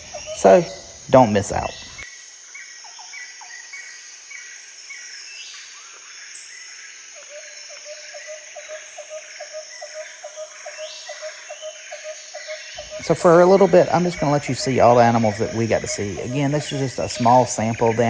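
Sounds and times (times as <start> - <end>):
short chirping calls: 0.0 - 2.1, 9.8 - 18.0
high insect drone: 0.0 - 18.0.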